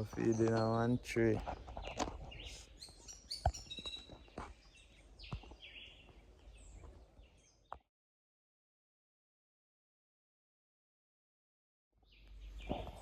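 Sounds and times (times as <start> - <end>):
small birds chirping: 0.0 - 7.9, 12.0 - 13.0.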